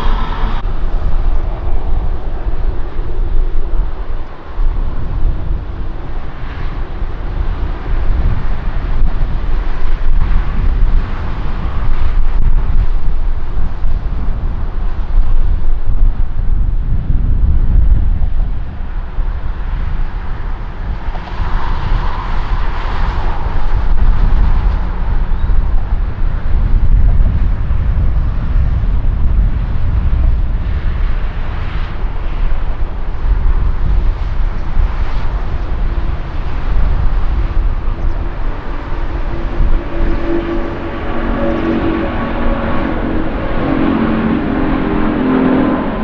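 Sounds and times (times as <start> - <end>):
jet engines rumbling: 0.0 - 17.5, 18.1 - 46.0
wind buffeting microphone: 0.0 - 46.0.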